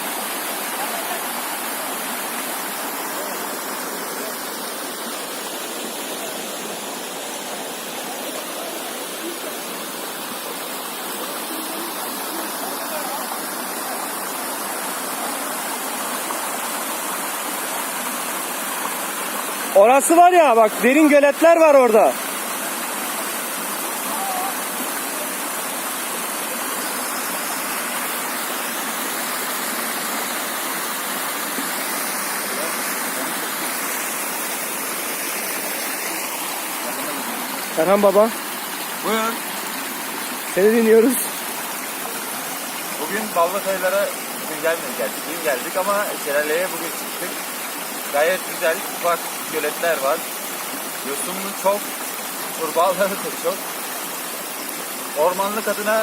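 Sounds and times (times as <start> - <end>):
water pouring over rock: 24.0 - 56.0.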